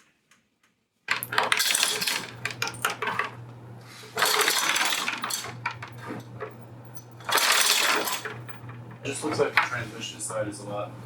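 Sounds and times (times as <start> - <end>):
metal clinking and rattling: 1.1 - 3.4, 4.2 - 9.7
low steady hum: 1.1 - 11.0.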